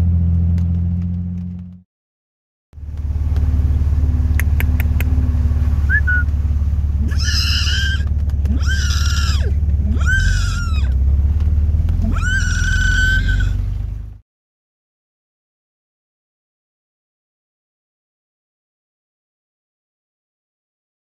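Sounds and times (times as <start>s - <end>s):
vehicle engine running: 0.0s - 1.8s, 2.8s - 14.2s
sharp clicks: 4.3s - 5.1s
high-pitched drawn-out calls: 7.0s - 10.9s.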